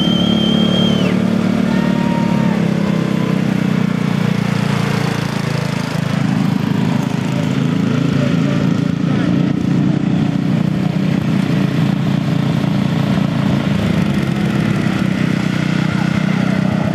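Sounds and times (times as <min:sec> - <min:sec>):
high steady whistle: 0:00.0 - 0:01.3
lawn mower engines racing: 0:00.0 - 0:16.9.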